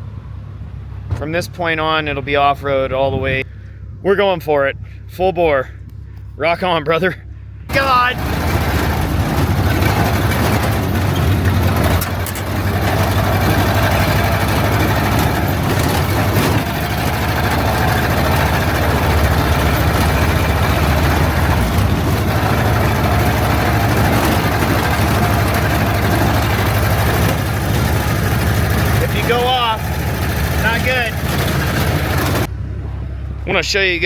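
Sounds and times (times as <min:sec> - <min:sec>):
car engine running: 0:07.6 - 0:34.0.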